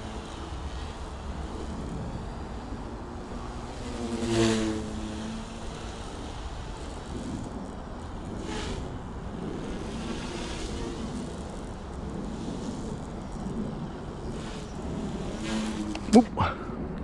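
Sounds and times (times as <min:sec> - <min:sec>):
small helicopter motor and rotor hum: 0:00.0 - 0:17.0.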